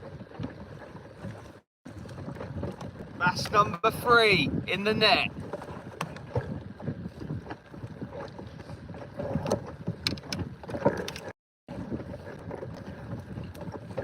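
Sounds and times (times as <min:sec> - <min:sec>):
wind on microphone: 0:00.0 - 0:14.0
knocks and clicks of handling fish: 0:09.4 - 0:11.3.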